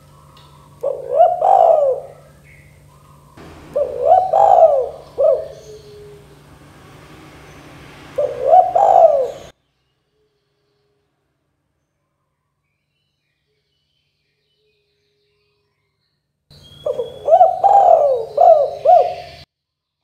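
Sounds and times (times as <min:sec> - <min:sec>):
dove cooing: 0:00.0 - 0:07.1, 0:08.0 - 0:09.5, 0:16.8 - 0:19.4.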